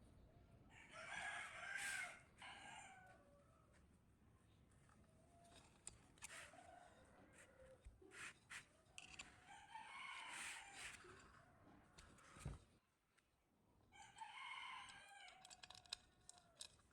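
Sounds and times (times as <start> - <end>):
rooster crowing faintly: 0.6 - 3.8, 5.2 - 7.9, 8.6 - 11.7, 13.9 - 16.7.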